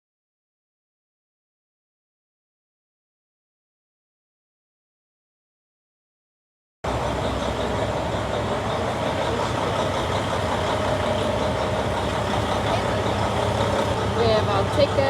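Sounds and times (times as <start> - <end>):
vehicle engine idling: 6.8 - 15.0.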